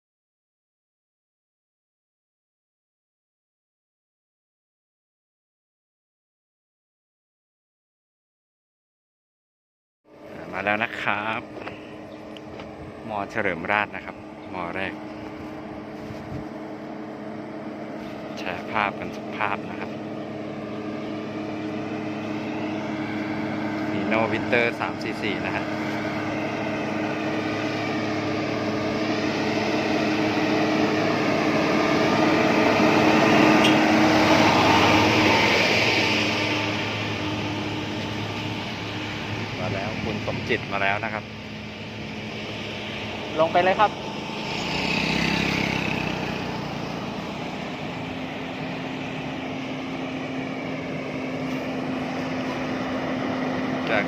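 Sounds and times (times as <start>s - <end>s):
truck diesel engine under load: 10.1s - 54.0s.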